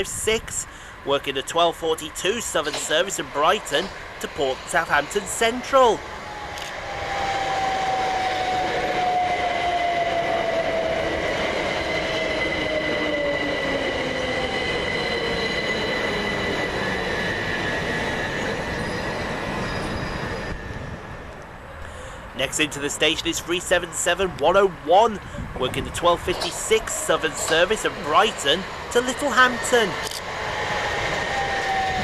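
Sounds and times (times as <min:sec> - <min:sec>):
wheel-on-rail noise: 0:25.5 - 0:32.0
electric train motor whine: 0:30.0 - 0:32.0.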